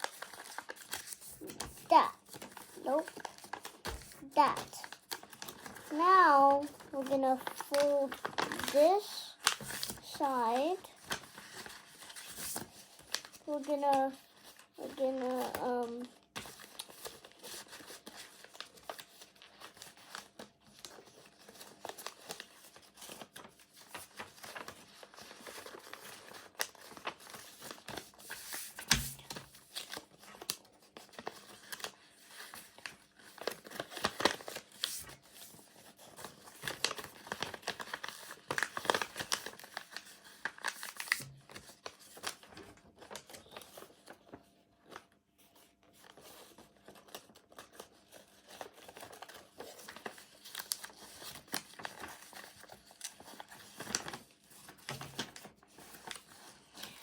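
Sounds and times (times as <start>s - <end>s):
paper crinkling and rustling: 0.0s - 57.0s.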